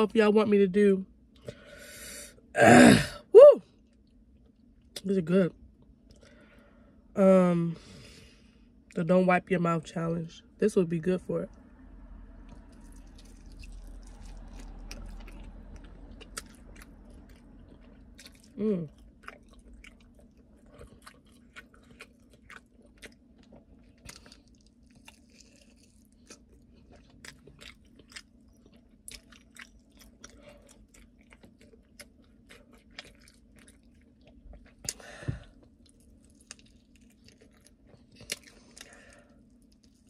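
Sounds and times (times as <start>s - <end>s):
chewing mouth clicks and smacks: 35.8s - 38.9s.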